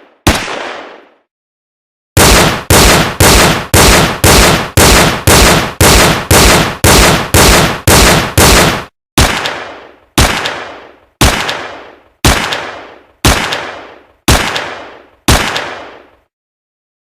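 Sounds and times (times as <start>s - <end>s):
gunshots with echo: 0.0s - 1.3s, 2.2s - 16.3s.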